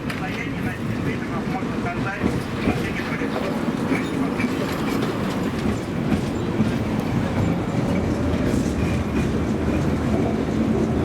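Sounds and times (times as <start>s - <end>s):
tram rumbling on rails: 0.0s - 11.0s.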